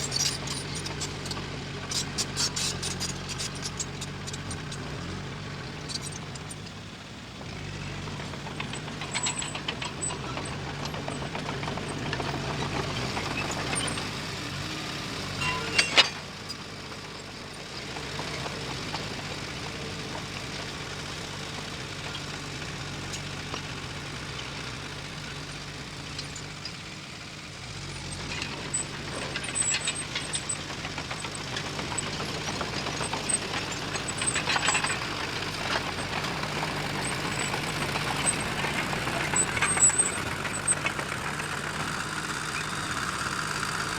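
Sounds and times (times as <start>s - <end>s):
metallic rattles and clanks: 0.0s - 6.8s, 7.5s - 14.2s, 15.2s - 16.6s, 27.9s - 43.0s
diesel earthmoving machine engine: 0.0s - 43.9s.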